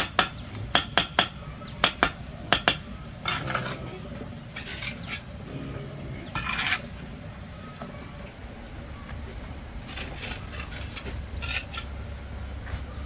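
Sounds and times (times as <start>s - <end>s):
high insect drone: 0.0s - 13.0s
scraping strokes: 3.2s - 7.1s, 9.8s - 11.9s.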